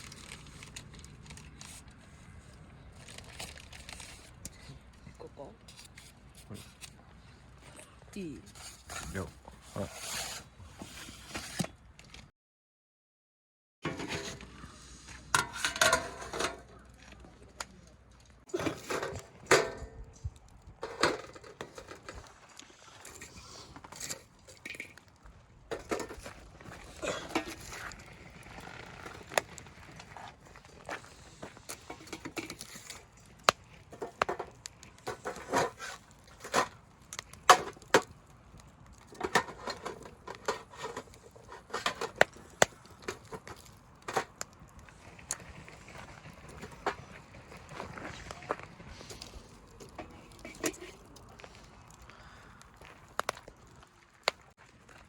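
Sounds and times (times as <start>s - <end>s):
cookware and utensils clinking: 15.3s - 16.7s.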